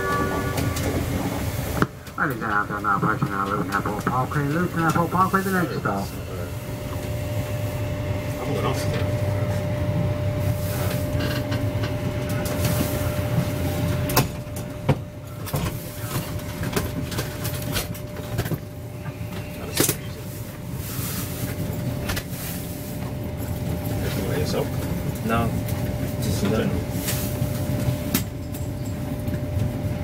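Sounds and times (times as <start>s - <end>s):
steady hum: 0.0s - 16.5s
train running rumble: 0.0s - 30.0s.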